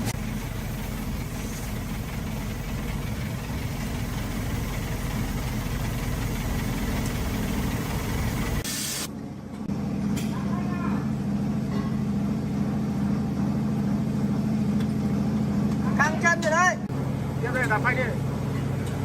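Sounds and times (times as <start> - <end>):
van engine idling: 0.0 - 8.7.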